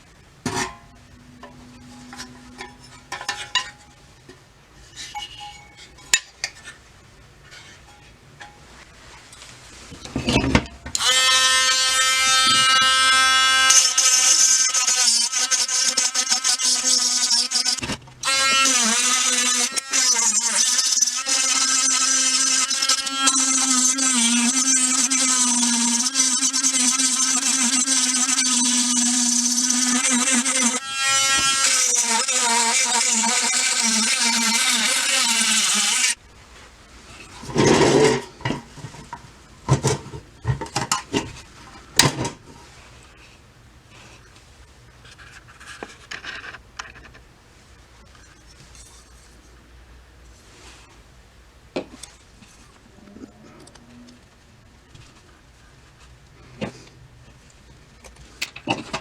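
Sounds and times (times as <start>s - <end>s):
power tool motor whining: 11.0s - 36.2s.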